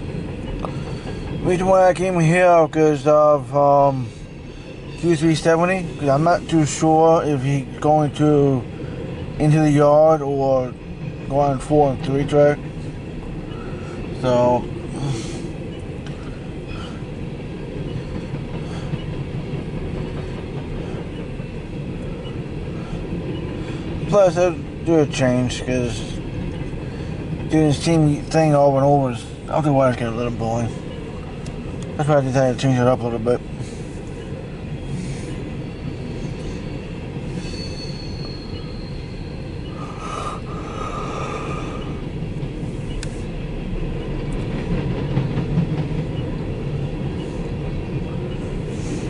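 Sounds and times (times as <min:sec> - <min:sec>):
train cars rolling past: 0:00.0 - 0:49.0
wheel squeal: 0:33.6 - 0:42.0.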